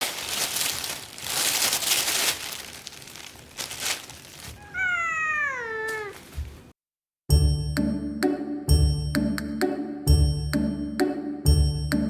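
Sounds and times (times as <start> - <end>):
rustling crinkling noise: 0.0 - 6.8
cat meowing: 4.5 - 6.4.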